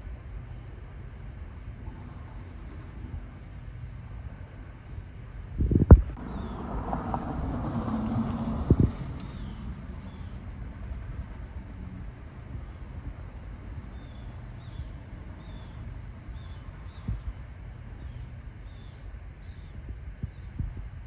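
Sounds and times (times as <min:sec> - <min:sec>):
wind rumble on microphone: 0:00.0 - 0:21.0
faint bird chirps: 0:11.9 - 0:13.0, 0:13.9 - 0:20.6.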